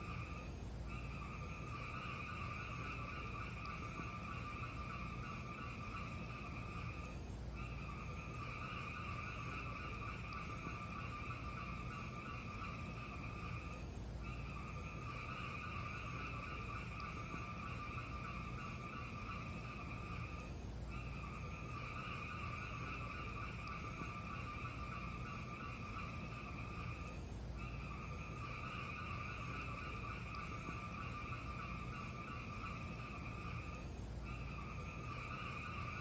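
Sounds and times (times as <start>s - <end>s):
faint fire crackles: 0.0s - 36.0s.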